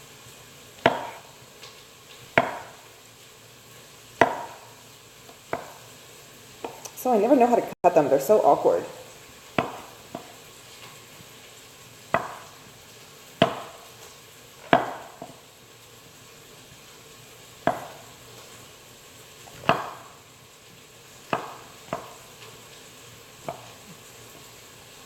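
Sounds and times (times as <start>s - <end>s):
knife slicing on cutting board: 0.8s - 1.3s.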